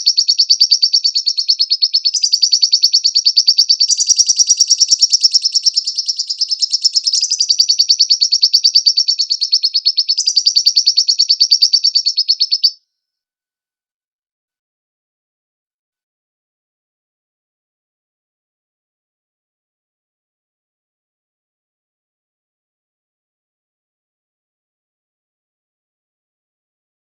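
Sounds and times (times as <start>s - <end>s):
lovebird chirping: 0.0s - 12.8s.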